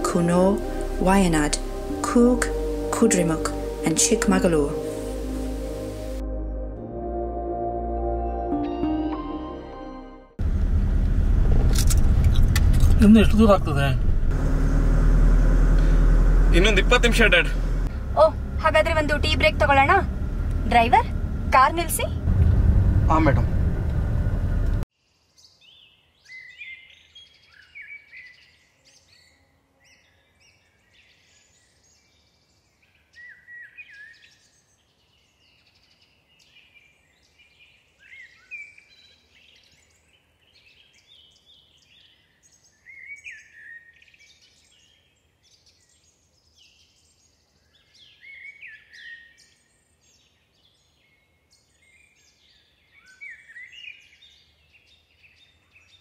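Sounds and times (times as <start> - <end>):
songbird chirping: 0.0 - 10.4, 24.8 - 56.0.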